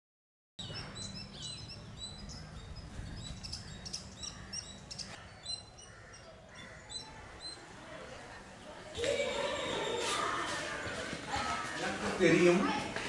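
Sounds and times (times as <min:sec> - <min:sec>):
small birds chirping: 0:00.6 - 0:08.9.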